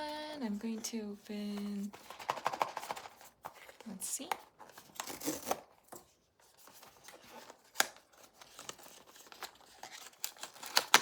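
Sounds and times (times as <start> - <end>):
cardboard and plastic crinkling: 0.0 - 11.0.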